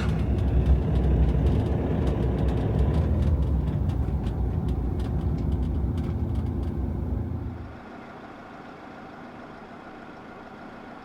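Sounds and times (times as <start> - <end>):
road rumble: 0.0 - 11.0
van engine running: 0.0 - 11.0.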